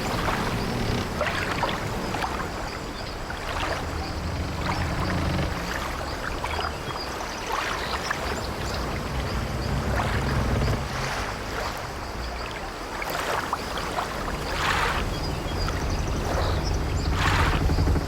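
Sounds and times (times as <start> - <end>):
wooden ship timbers creaking: 0.0 - 6.9, 8.2 - 11.9, 15.0 - 18.0
sea waves washing against ship: 0.0 - 18.0
low rumble: 14.4 - 18.0.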